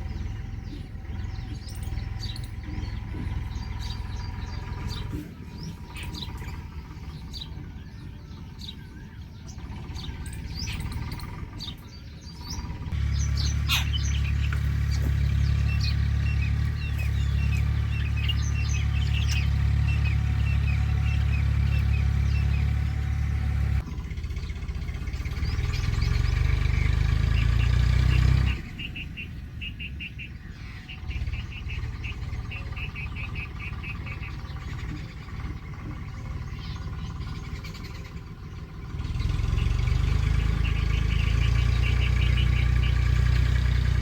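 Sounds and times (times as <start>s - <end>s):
small birds chirping: 0.0s - 44.0s
bird repeating short calls: 13.3s - 14.5s.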